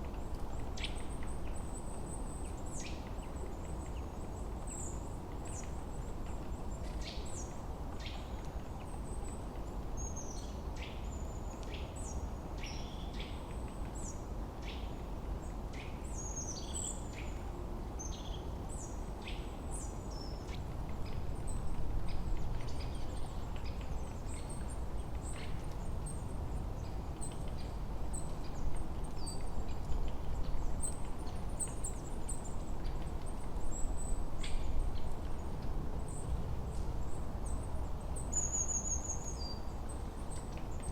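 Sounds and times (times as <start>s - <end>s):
low rush of wind: 0.0s - 40.9s.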